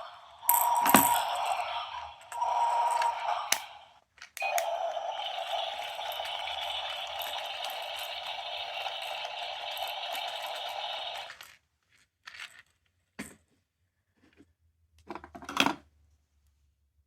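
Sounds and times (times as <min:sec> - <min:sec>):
crackly recorded sound from toy speaker: 0:00.0 - 0:12.1
plastic toy clicks and knocks: 0:00.5 - 0:01.5.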